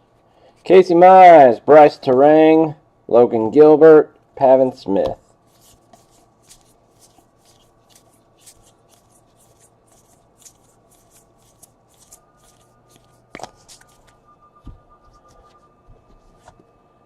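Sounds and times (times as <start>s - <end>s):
cards being flipped: 5.0s - 14.2s.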